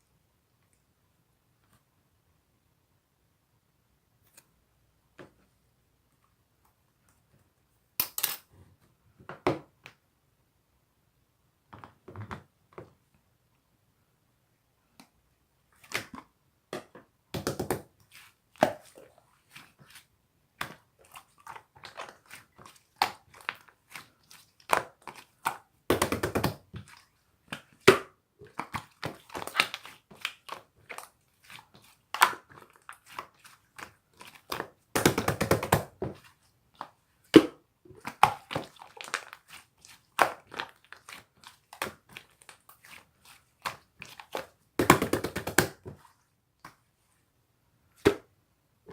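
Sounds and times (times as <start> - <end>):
hands squishing slime: 17.4 - 46.8.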